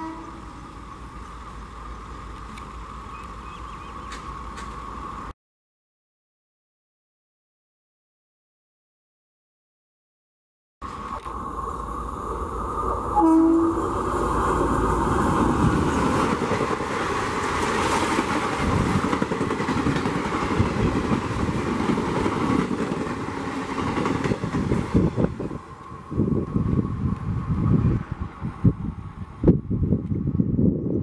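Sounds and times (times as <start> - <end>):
train horn blast: 0.0 - 0.7, 13.2 - 14.0
train coaches rushing and clattering: 0.0 - 5.3, 10.9 - 28.7.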